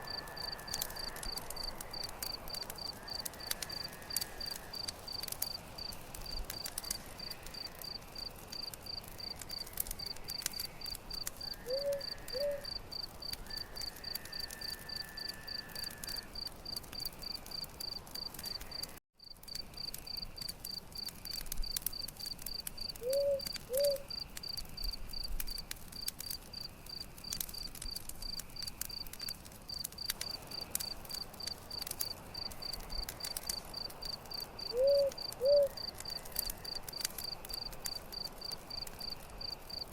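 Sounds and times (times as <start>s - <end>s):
crickets chirping: 0.0s - 25.6s, 27.6s - 39.9s
campfire crackling and popping: 0.0s - 39.9s.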